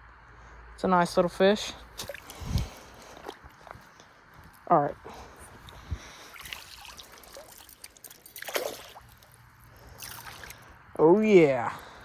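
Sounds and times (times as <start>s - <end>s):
water trickling and dripping: 5.7s - 10.6s.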